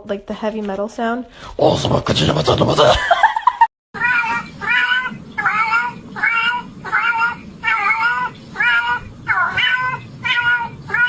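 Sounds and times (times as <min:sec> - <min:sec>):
cat meowing: 0:04.0 - 0:11.0.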